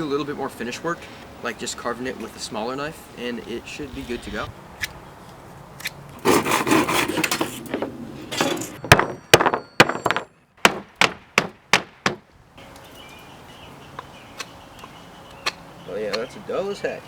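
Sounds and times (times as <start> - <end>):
rough scraping on wood: 6.2 - 7.9
sharp wooden knocks: 8.8 - 12.3.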